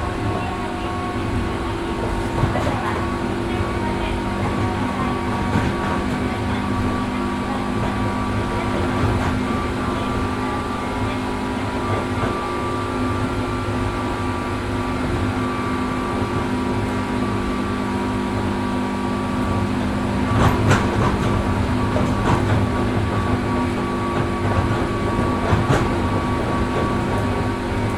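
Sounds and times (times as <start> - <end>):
wheels clicking over rail joints: 0.0 - 12.5, 19.4 - 27.9
traction motor whine: 0.0 - 27.9
train wheels rumbling on rails: 0.0 - 27.9.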